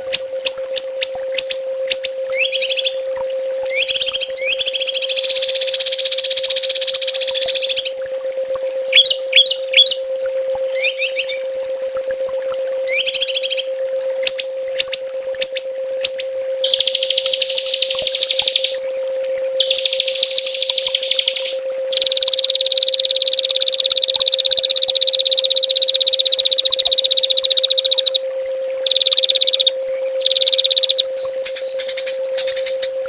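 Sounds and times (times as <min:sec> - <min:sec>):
songbird trilling: 0:00.0 - 0:03.0, 0:03.7 - 0:08.0, 0:08.9 - 0:10.0, 0:10.8 - 0:11.5, 0:12.9 - 0:18.8, 0:19.6 - 0:23.4, 0:28.9 - 0:33.0
steady low hum: 0:00.0 - 0:33.0.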